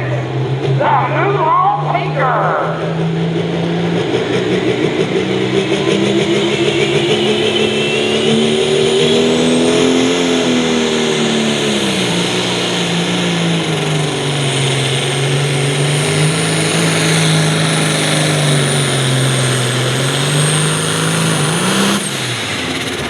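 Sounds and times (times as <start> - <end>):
announcer speaking: 0.0 - 3.1
tractor diesel engine under load: 0.0 - 23.0
high whistle: 6.2 - 9.3.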